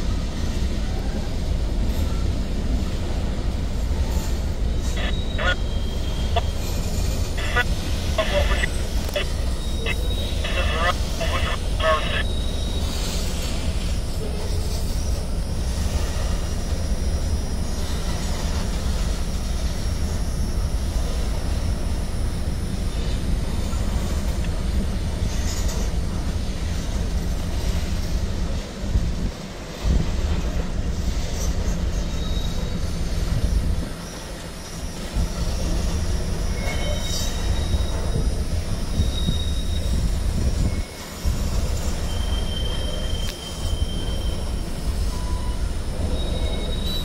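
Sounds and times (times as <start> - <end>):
freight train wheels rumbling: 0.0 - 47.0
high wheel squeals: 31.3 - 47.0.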